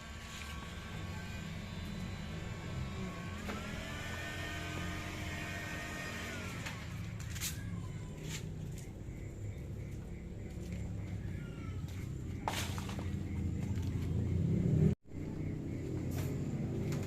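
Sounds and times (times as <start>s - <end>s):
truck engine running: 0.0s - 7.4s.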